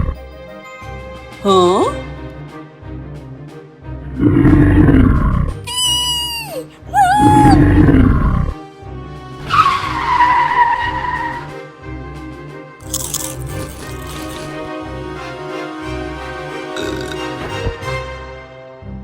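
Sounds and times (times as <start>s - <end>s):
background music with steady beat: 0.0s - 19.0s
cartoon growling roars: 6.9s - 8.2s.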